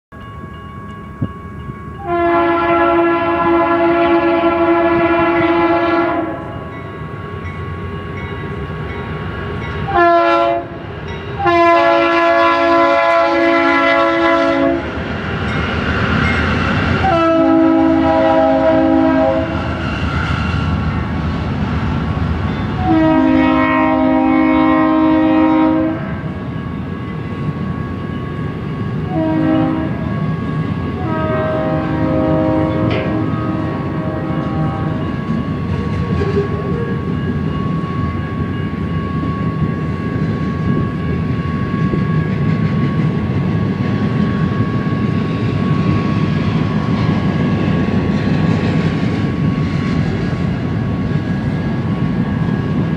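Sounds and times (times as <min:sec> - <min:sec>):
train engines and wheels rumbling: 0:00.1 - 0:52.9
locomotive air horn blasts: 0:02.0 - 0:06.7, 0:09.9 - 0:10.8, 0:11.4 - 0:14.9, 0:17.0 - 0:19.6, 0:22.8 - 0:26.2, 0:29.1 - 0:30.1, 0:31.0 - 0:35.2.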